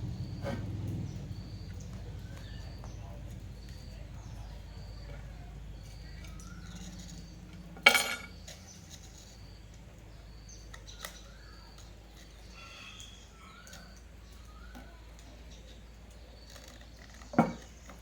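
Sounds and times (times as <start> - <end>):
low hum: 0.0 - 8.6
small birds chirping: 0.0 - 18.0.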